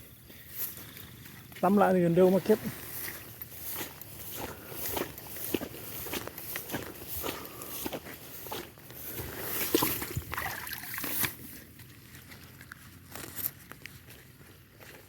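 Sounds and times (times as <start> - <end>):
water sloshing and trickling: 9.5 - 11.4
knocks and splashes: 9.7 - 11.3.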